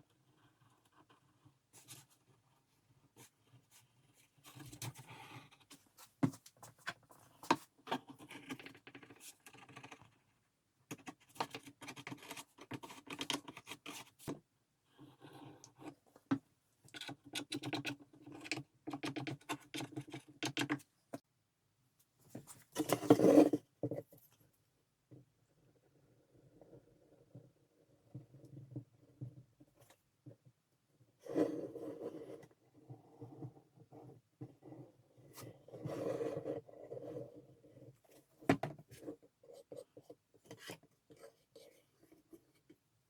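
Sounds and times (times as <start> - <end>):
scratching and scraping on wood: 22.3 - 24.3.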